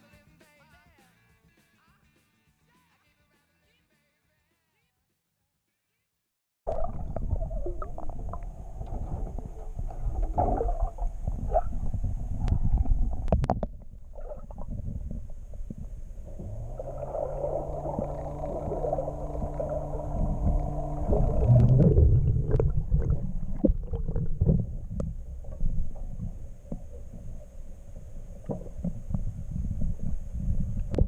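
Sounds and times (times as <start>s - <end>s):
steady hum with tones: 6.7s - 31.0s
wind and water rumble on microphone: 6.7s - 31.0s.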